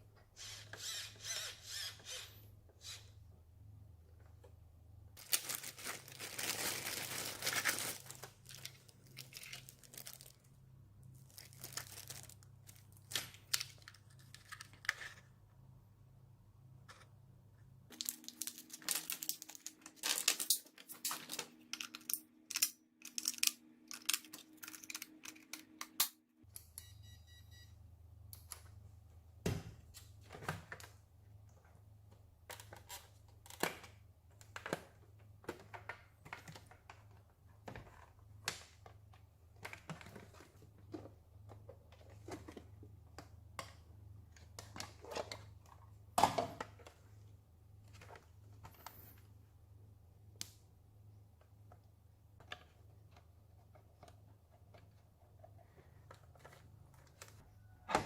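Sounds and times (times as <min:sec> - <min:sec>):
plastic crinkling and tearing: 0:05.2 - 0:10.5, 0:11.2 - 0:14.8, 0:17.9 - 0:22.1.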